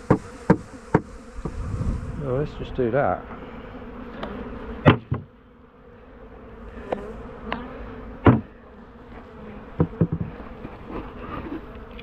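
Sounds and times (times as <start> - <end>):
honeybees buzzing: 0.0 - 12.0
sharp knocks: 0.1 - 1.6, 4.8 - 5.3, 8.2 - 8.5.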